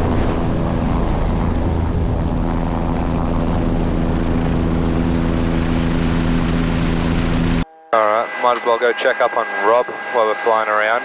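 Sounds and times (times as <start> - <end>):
helicopter engine and rotor drone: 2.4 - 7.6.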